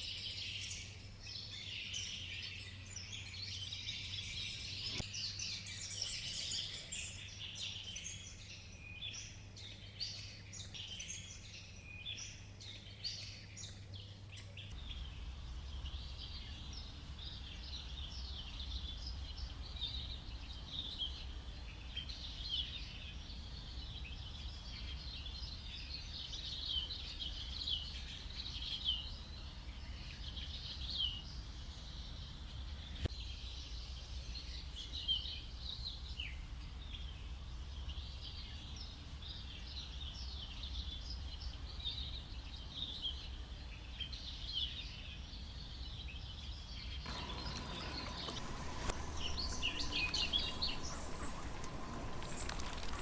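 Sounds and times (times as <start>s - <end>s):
birds and insects chirping: 47.1s - 53.0s
low steady hum: 47.1s - 53.0s.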